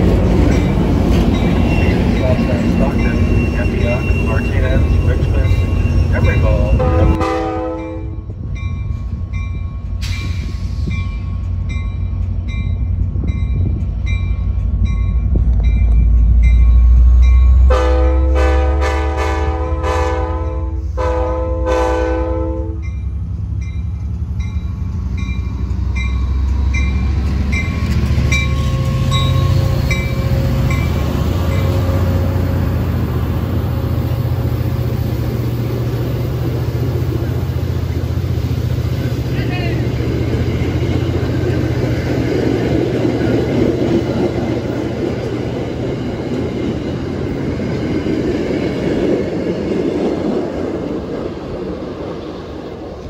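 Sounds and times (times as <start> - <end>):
locomotive rumbling: 0.0 - 53.0
train chime horn blasts: 6.2 - 8.3, 17.6 - 23.0.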